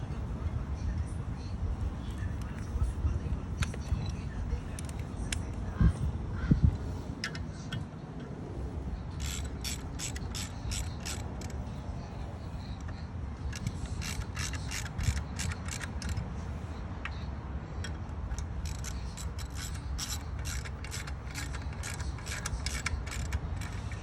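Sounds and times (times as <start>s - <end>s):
steady low rumble: 0.0s - 24.0s
ratchet wrench clicking: 9.1s - 11.7s, 12.6s - 16.2s, 17.0s - 24.0s.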